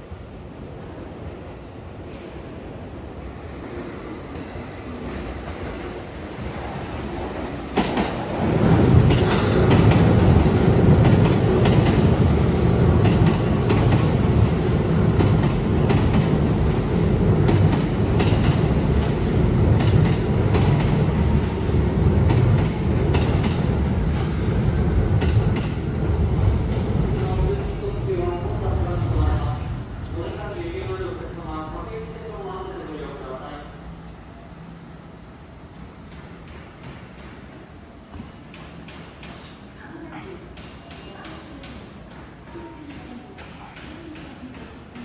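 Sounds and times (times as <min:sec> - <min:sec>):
train wheels rumbling on rails: 0:02.1 - 0:45.0
rail-joint clicks: 0:07.7 - 0:12.3, 0:13.0 - 0:14.6, 0:17.5 - 0:19.1, 0:19.8 - 0:21.6, 0:22.2 - 0:24.4, 0:25.1 - 0:25.8, 0:36.1 - 0:39.8.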